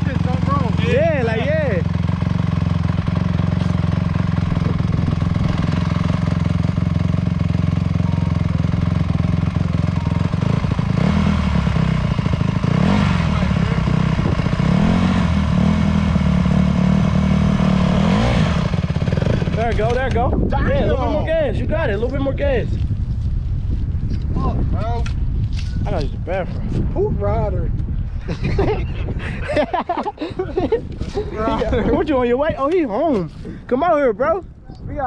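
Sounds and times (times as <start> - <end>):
dirt bike engine revving: 0.0 - 20.2.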